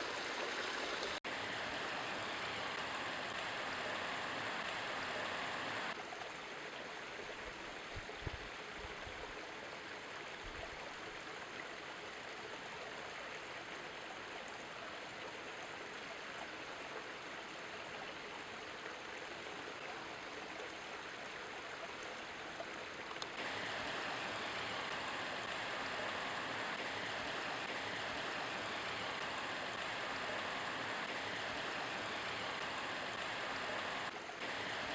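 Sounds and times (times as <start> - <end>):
steady outdoor rushing noise: 1.3 - 6.0, 23.3 - 34.9.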